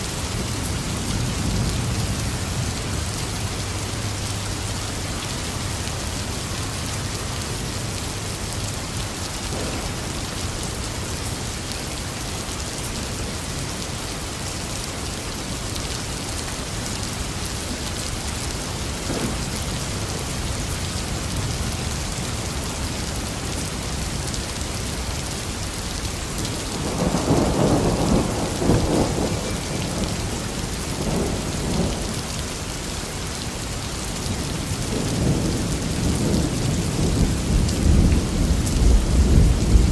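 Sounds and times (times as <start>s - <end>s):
steady rain falling: 0.0s - 39.9s
thunder rumbling: 9.4s - 11.4s, 19.0s - 21.8s, 26.6s - 32.1s, 34.8s - 39.9s.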